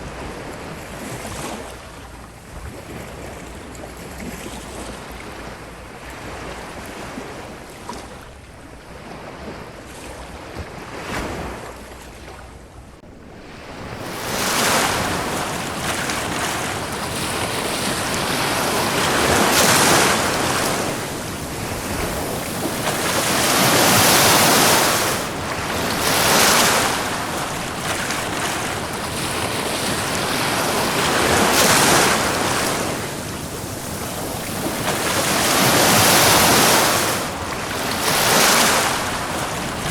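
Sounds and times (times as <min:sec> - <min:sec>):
ocean surf washing onto beach: 0:13.4 - 0:39.9.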